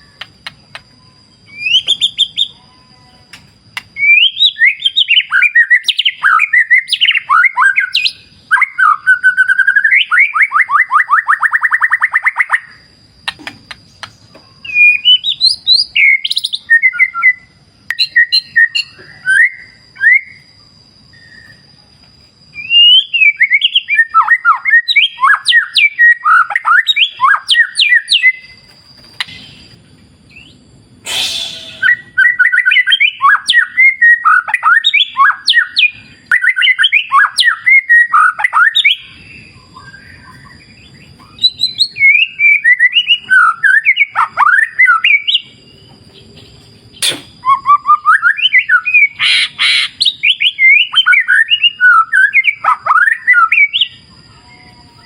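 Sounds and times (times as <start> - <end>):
bird singing whistled phrases: 0.9 - 12.8, 14.0 - 20.5, 22.5 - 45.6, 47.0 - 55.0
sharp click: 47.0 - 47.4.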